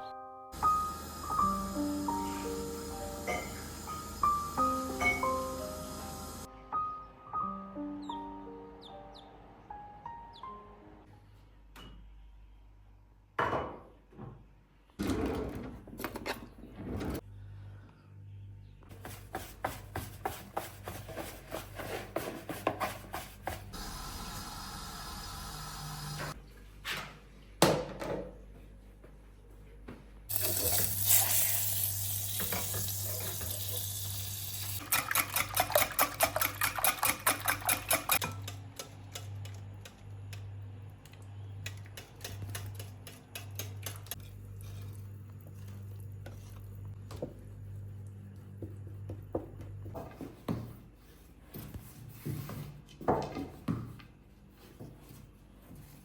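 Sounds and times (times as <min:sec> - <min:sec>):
water running from a tap: 0:00.6 - 0:06.5, 0:23.8 - 0:26.4, 0:30.3 - 0:38.2
dishes and pots clinking: 0:03.2 - 0:05.6, 0:34.8 - 0:39.6.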